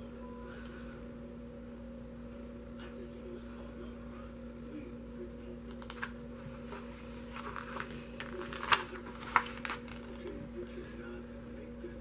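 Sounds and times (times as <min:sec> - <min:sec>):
steady low hum: 0:00.0 - 0:12.0
paper pages rustling: 0:05.8 - 0:10.5.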